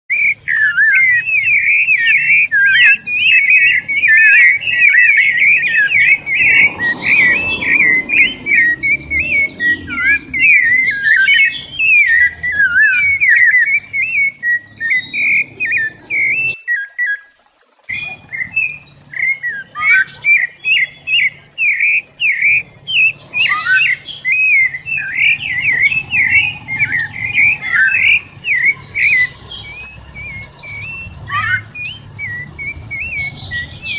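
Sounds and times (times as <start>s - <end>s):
thin high chirps: 0.1s - 17.3s
thrush whistled song: 0.1s - 33.9s.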